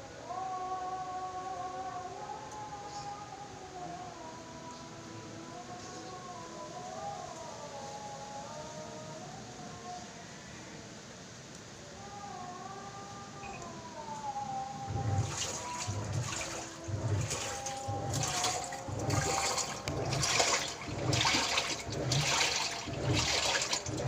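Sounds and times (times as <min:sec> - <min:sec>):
washing machine sloshing water: 0:14.8 - 0:24.0.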